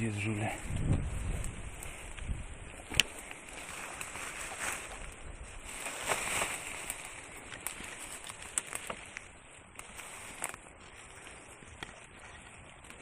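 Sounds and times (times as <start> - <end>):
rustling outdoors: 0.0 - 13.0
light snaps and clicks: 0.7 - 4.1, 6.8 - 10.6.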